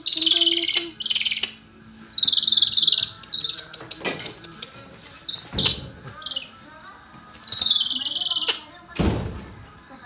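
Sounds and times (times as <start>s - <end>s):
bird of prey calling: 0.0s - 3.7s, 5.3s - 6.6s, 7.4s - 8.7s.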